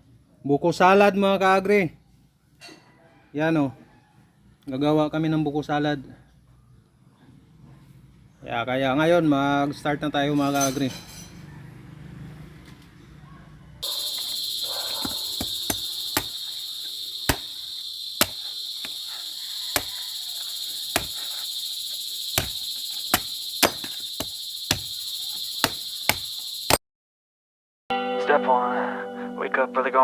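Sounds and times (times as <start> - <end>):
insect chirring: 13.8 - 26.8
sharp knocks: 15.0 - 16.4, 18.2 - 19.0, 20.9 - 21.2, 22.3 - 25.0, 25.6 - 26.8.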